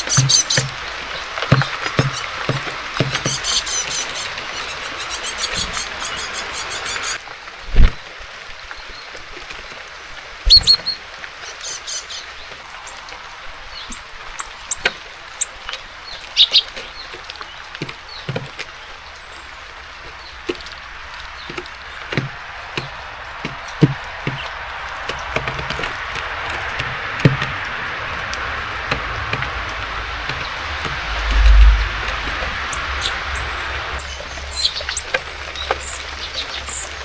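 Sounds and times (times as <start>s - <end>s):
high bird chirps: 0.0s - 7.2s, 10.5s - 12.4s, 16.4s - 16.7s, 31.3s - 37.0s
birds pecking on wooden feeder: 0.0s - 7.9s, 10.5s - 13.1s, 13.7s - 37.0s
rain hissing: 0.0s - 37.0s.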